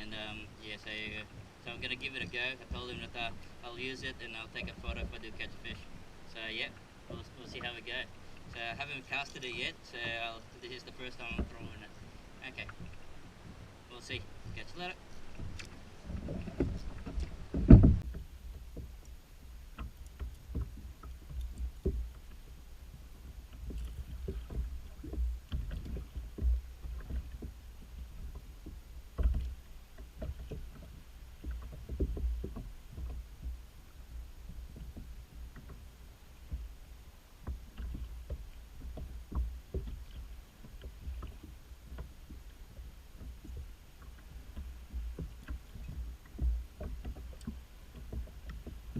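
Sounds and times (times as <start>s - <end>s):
water lapping against hull: 0.0s - 48.9s
knocks and taps on kayak: 1.0s - 5.8s, 11.1s - 13.6s, 14.2s - 36.8s, 37.4s - 48.9s.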